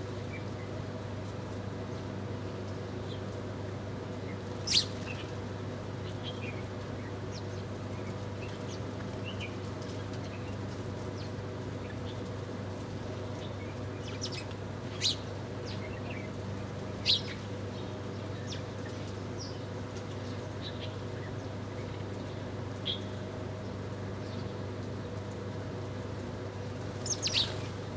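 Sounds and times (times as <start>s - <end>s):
small birds chirping: 4.3s - 5.4s, 13.3s - 22.0s, 26.9s - 27.9s.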